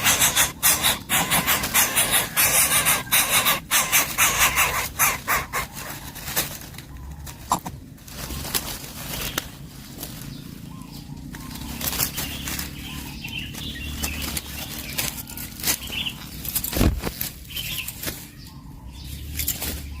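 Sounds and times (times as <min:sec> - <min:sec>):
rustling and wing flaps: 0:00.0 - 0:10.3.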